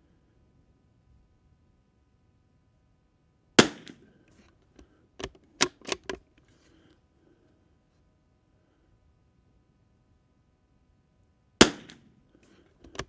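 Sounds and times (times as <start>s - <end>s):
rifle shot: 3.6s - 4.1s, 11.6s - 12.2s
rifle bolt clicks: 5.2s - 6.2s.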